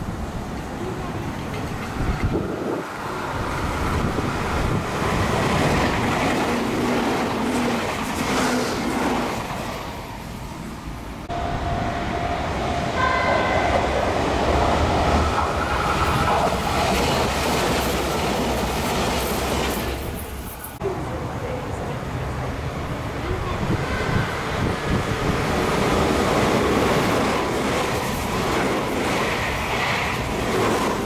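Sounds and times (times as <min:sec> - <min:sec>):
electric train rumble and wheel clatter: 0:00.0 - 0:31.0
steady tone: 0:11.2 - 0:16.6.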